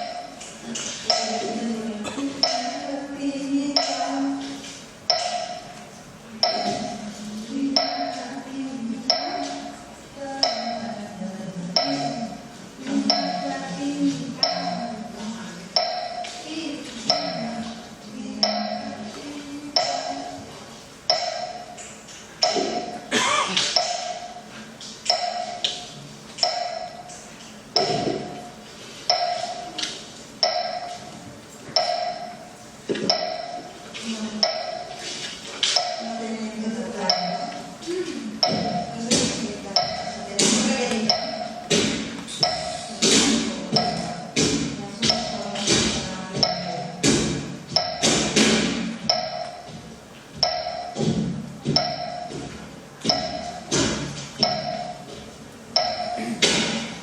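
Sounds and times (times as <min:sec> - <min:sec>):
stamping dance footwork: 0:51.0 - 0:52.6.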